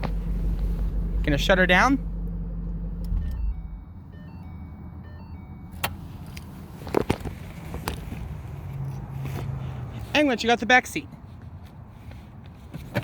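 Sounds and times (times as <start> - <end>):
car electronic chime: 3.1 - 6.0
clicks and knocks in car cabin: 12.7 - 13.0.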